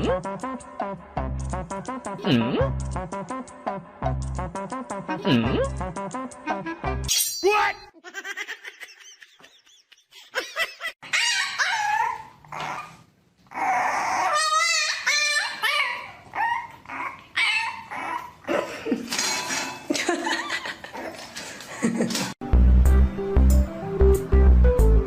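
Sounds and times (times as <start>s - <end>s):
dog barking and whining: 11.0s - 18.5s.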